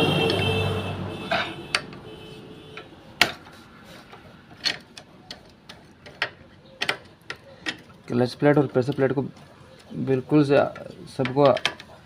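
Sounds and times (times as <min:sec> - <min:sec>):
metal tools clicking and knocking: 0:01.3 - 0:02.0, 0:04.1 - 0:12.0.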